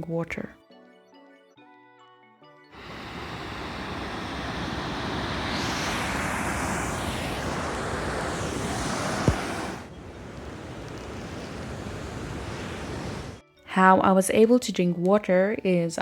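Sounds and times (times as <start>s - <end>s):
waterfall roaring: 2.8s - 13.4s
sharp thump: 7.4s - 9.8s.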